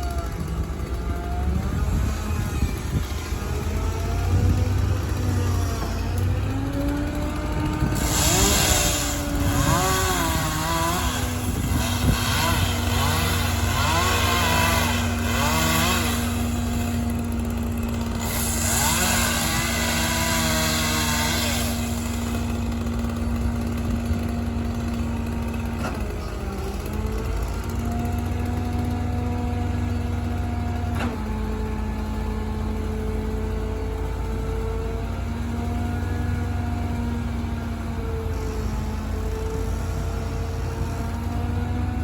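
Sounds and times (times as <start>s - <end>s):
high rasping power tool: 0.0s - 30.0s
engine running steadily: 0.0s - 42.0s.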